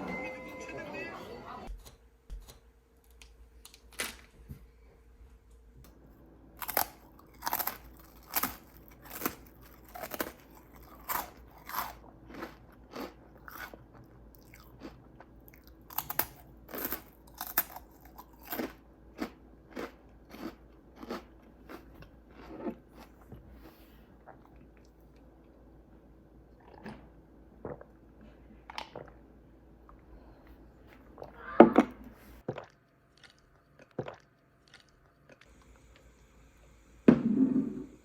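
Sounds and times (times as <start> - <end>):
chewing and crunching food: 6.6 - 25.7, 29.9 - 36.1.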